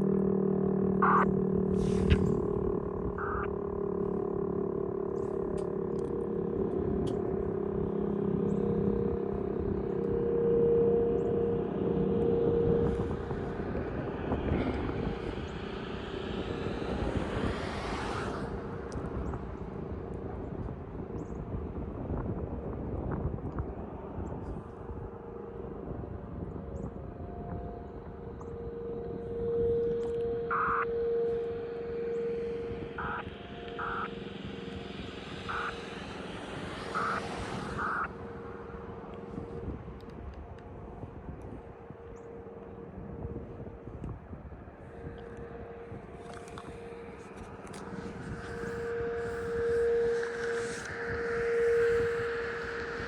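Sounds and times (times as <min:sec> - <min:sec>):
passing vehicle or aircraft: 0:00.0 - 0:20.6, 0:25.6 - 0:40.1
distant warning siren: 0:00.0 - 0:53.0.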